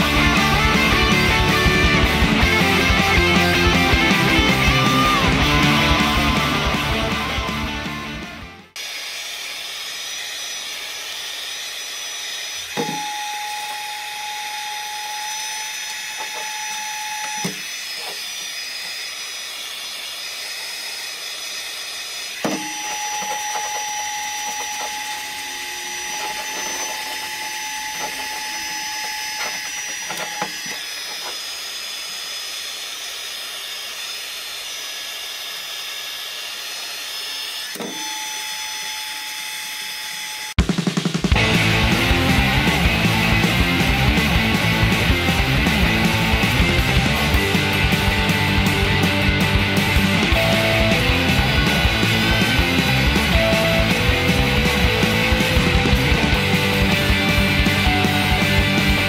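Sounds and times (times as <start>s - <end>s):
heat gun blowing air: 8.8s - 40.4s.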